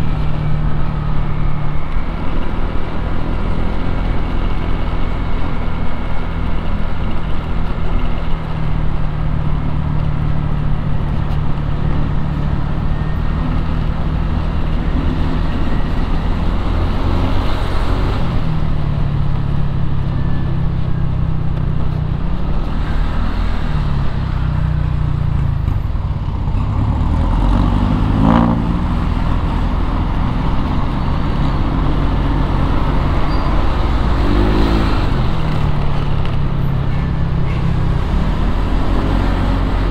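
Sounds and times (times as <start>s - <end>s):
road traffic noise: 0.0s - 39.9s.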